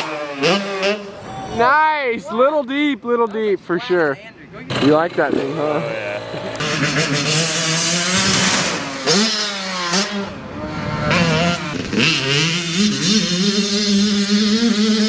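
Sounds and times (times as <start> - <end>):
dirt bike engine revving: 0.0 - 1.5, 4.7 - 15.0.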